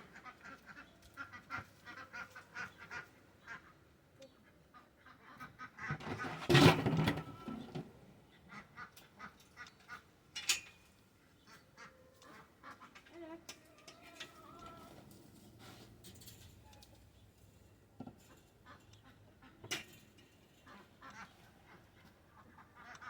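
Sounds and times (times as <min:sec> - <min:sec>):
ducks quacking: 0:00.0 - 0:06.4, 0:20.6 - 0:23.0.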